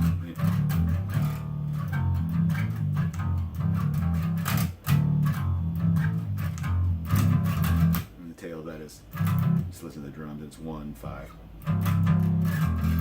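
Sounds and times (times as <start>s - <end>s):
electric bass guitar line: 0.0s - 8.2s, 9.1s - 9.7s, 11.5s - 13.0s.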